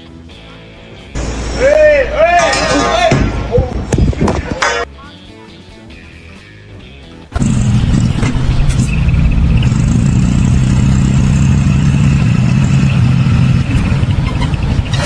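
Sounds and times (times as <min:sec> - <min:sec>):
engine running loudly: 0:01.2 - 0:03.2, 0:07.3 - 0:15.0.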